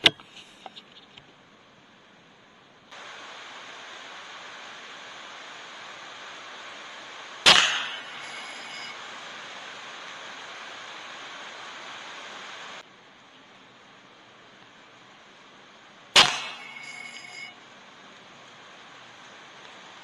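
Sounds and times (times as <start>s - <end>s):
steady hiss: 0.0s - 20.0s
air rifle shot: 7.4s - 8.9s, 16.2s - 17.4s
brief metallic ring: 7.5s - 9.0s, 16.2s - 17.6s.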